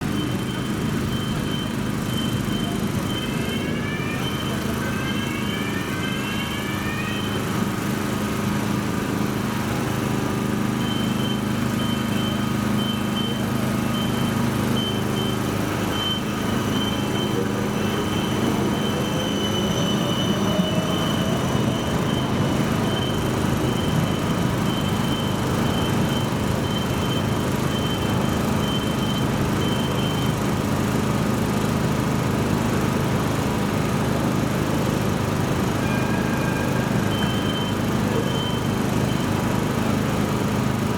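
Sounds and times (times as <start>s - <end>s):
traction drive whine: 0.0s - 40.9s
tram electric hum: 0.0s - 40.9s
high beep pulses: 0.1s - 7.5s, 10.8s - 30.3s, 35.8s - 39.4s.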